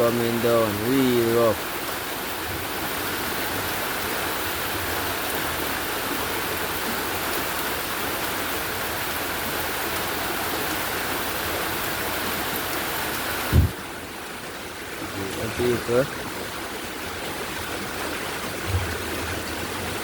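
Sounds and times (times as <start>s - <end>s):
heavy rain: 0.0s - 20.0s
rushing runoff water: 0.0s - 20.0s
short low thump: 13.5s - 13.8s.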